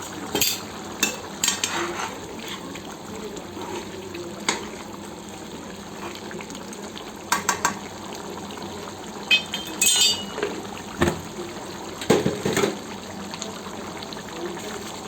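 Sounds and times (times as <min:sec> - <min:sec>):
gravy bubbling in a pot: 0:00.0 - 0:15.0
metal ladle clinking against pot: 0:09.3 - 0:10.5.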